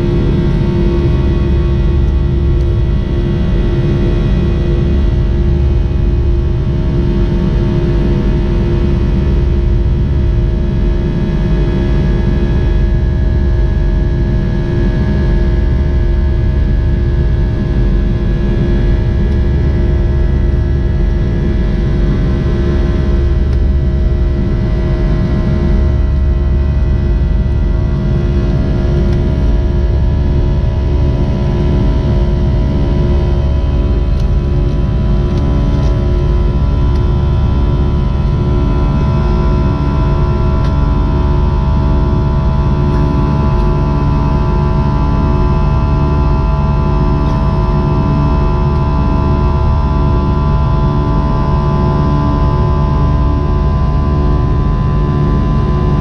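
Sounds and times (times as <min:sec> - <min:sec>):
steady mechanical hum: 0:00.0 - 0:56.0
vehicle engine rumbling: 0:26.6 - 0:45.4.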